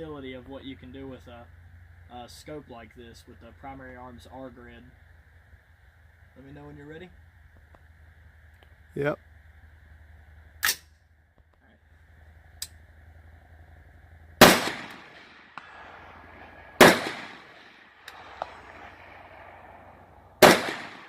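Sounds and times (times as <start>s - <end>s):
rifle shots with echo: 14.4s - 21.0s.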